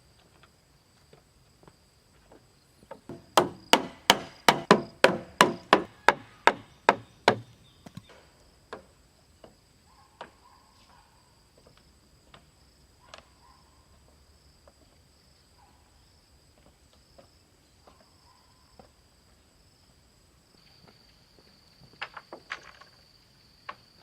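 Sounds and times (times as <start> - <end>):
high-pitched insect trill: 19.5 - 24.0.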